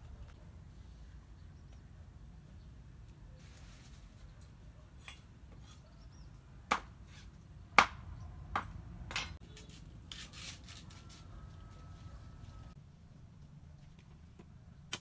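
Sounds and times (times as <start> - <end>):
scraping rustle: 3.4 - 4.6.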